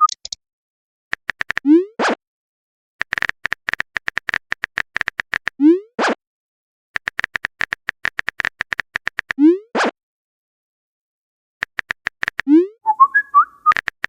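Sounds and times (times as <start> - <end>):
keyboard typing clicks: 0.0 - 0.4, 1.1 - 1.6, 3.0 - 5.5, 7.0 - 9.4, 11.6 - 12.5, 13.6 - 14.0
rising blip and pop: 12.2 - 14.0.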